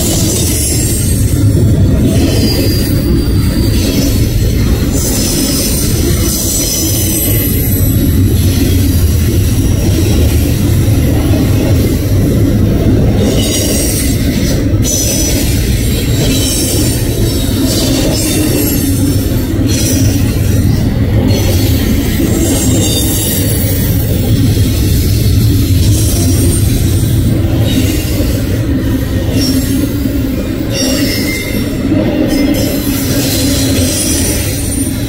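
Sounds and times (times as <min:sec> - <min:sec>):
freight train wheels rumbling: 0:00.0 - 0:35.0
high-pitched wheel squeal: 0:30.7 - 0:35.0.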